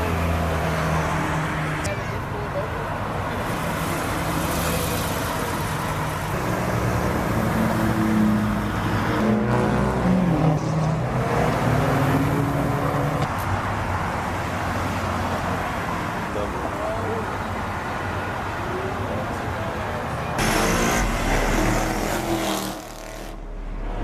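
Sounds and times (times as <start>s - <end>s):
car engine running: 20.4s - 24.0s.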